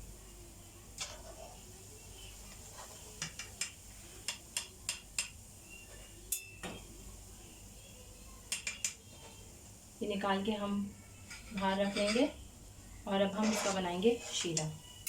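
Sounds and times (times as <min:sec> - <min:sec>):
metal spoon tapping on pan: 0:03.2 - 0:05.4, 0:06.3 - 0:06.9, 0:08.5 - 0:09.0.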